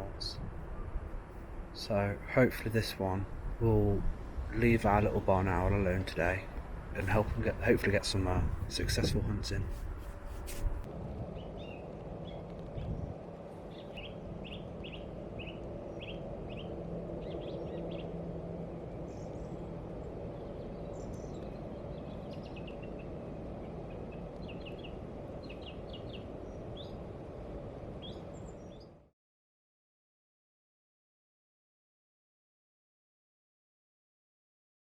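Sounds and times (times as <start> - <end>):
low background rumble: 0.0 - 28.9
birds chirping: 1.8 - 10.6, 13.6 - 29.0.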